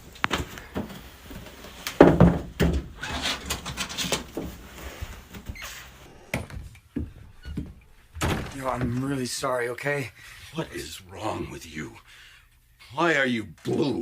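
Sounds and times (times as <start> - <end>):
knocks and thuds: 2.0 - 3.0, 6.3 - 9.1.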